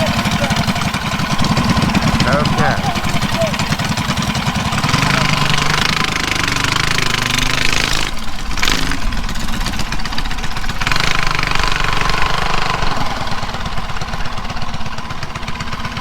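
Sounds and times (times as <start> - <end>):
small gas engine idling: 0.0 - 16.0.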